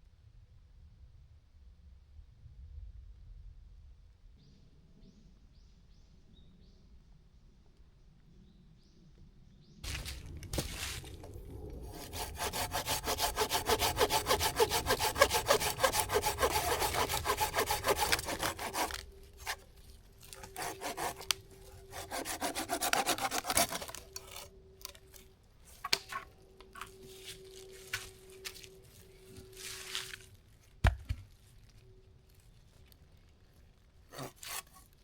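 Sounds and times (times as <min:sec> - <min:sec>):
hand saw cutting wood: 0:11.8 - 0:24.5, 0:34.1 - 0:35.0.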